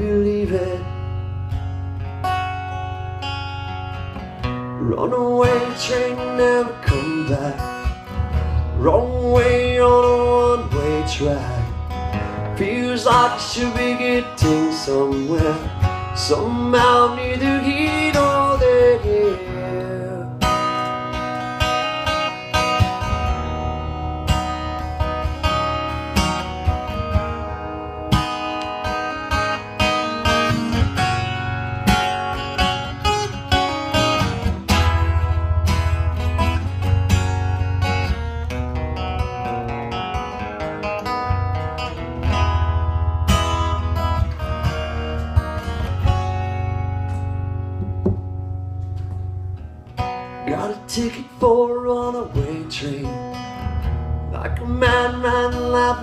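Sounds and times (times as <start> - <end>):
acoustic guitar music: 0.0 - 56.0
steady low bass: 22.8 - 28.1, 41.2 - 49.8.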